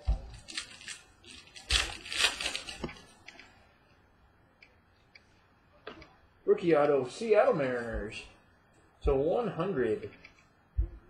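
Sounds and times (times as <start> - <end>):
cards and packaging rustling: 0.0 - 3.5.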